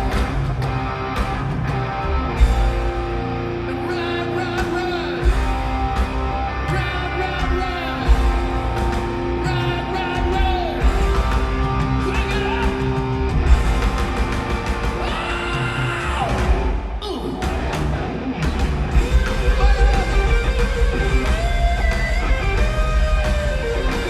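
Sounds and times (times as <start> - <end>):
bass guitar: 0.0 - 24.0
drums: 0.0 - 24.0
electric guitar: 0.0 - 24.0
lead vocal singing: 3.6 - 13.5, 14.8 - 17.6, 19.3 - 21.4.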